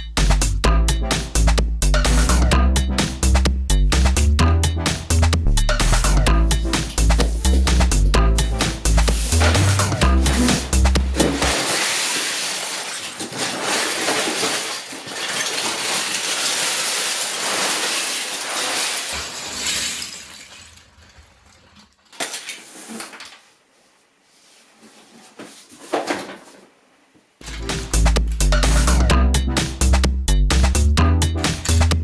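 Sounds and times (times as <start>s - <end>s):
plastic bricks clattering: 11.1s - 23.4s.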